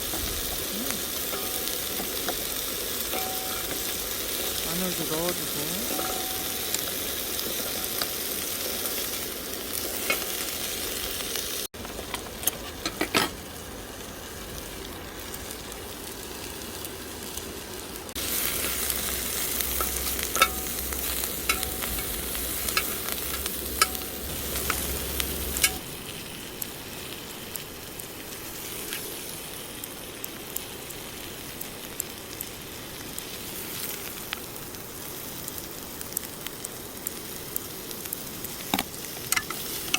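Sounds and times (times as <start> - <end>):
meat sizzling in a pan: 0.0 - 39.9
metal utensil clicking on pan: 1.2 - 3.9, 5.9 - 6.8, 18.6 - 24.9, 25.6 - 25.8, 38.7 - 39.9.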